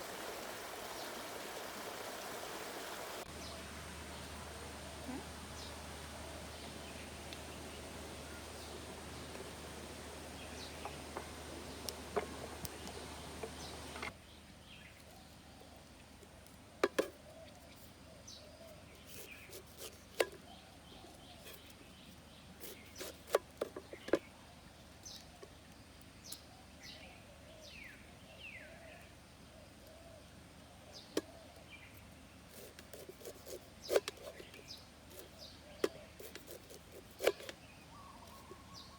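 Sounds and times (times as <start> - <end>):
steady hum and hiss: 0.0 - 38.9
birds chirping: 0.8 - 14.1, 33.8 - 38.9.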